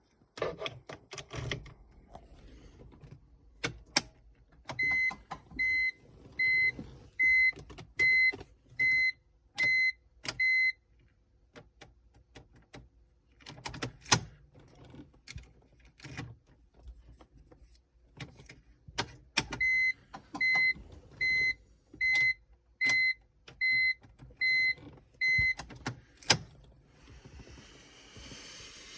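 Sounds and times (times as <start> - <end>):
car warning chime beeping: 19.6 - 25.6.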